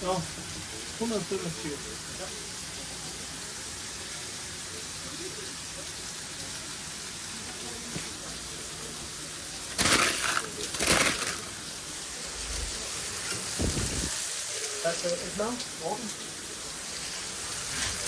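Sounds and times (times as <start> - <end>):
steady kitchen hiss: 0.0 - 18.0.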